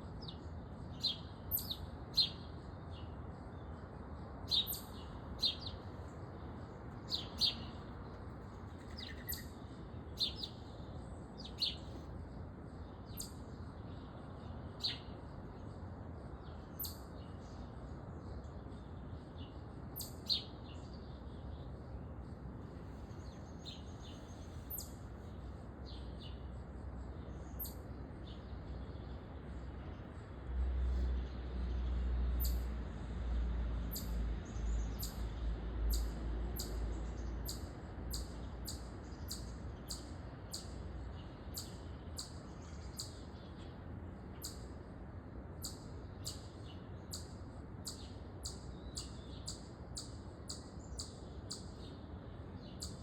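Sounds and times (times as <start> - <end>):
low background noise: 0.0 - 53.0
songbird chip calls: 0.2 - 3.0, 4.4 - 5.8, 7.0 - 7.8, 8.7 - 10.8, 12.8 - 15.3, 16.3 - 17.7, 19.2 - 21.4, 23.0 - 26.6, 27.2 - 29.2, 33.9 - 35.3, 35.9 - 44.8, 45.6 - 53.0.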